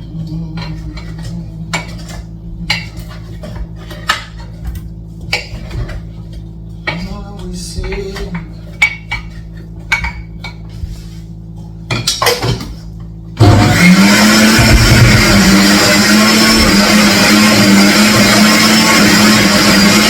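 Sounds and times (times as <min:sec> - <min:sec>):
electric blender running: 0:13.4 - 0:20.0.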